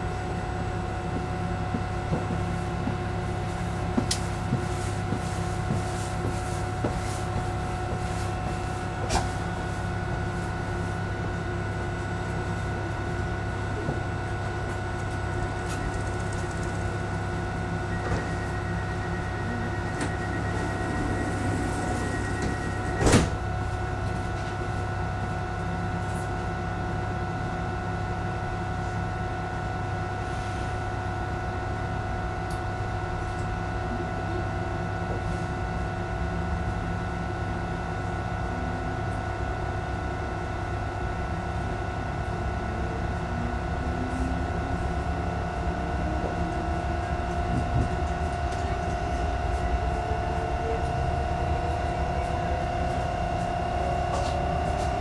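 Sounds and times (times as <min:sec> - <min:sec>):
train wheels rumbling on track: 0:00.7 - 0:24.5, 0:45.8 - 0:55.0.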